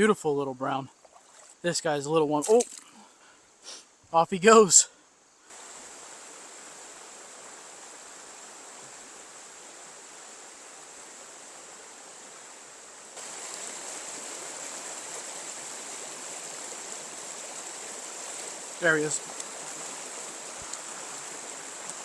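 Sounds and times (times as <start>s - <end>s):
small stream flowing: 0.0s - 3.4s, 4.2s - 22.0s.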